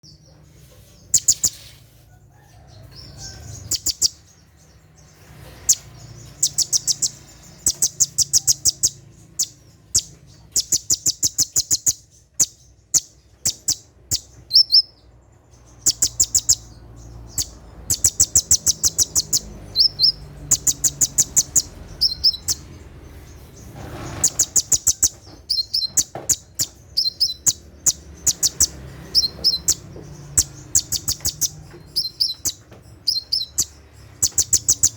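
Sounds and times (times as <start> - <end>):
bird trills: 1.1 - 1.7, 3.3 - 4.3, 5.4 - 15.1, 15.7 - 22.7, 23.6 - 34.9
bird high ticking notes: 5.6 - 15.0, 15.6 - 22.8, 24.5 - 34.9.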